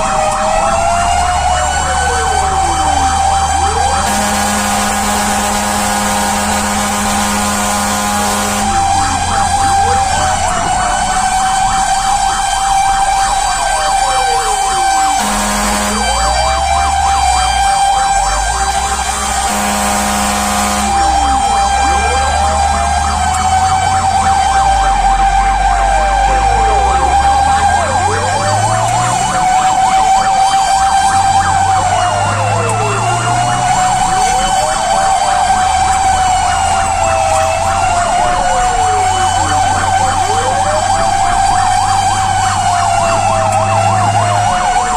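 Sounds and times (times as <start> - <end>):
truck engine revving: 0.0 - 12.1, 14.9 - 44.9
steady high siren: 0.0 - 44.9
wailing siren: 0.0 - 44.9
fire truck horn blasts: 3.0 - 11.1, 14.8 - 44.9.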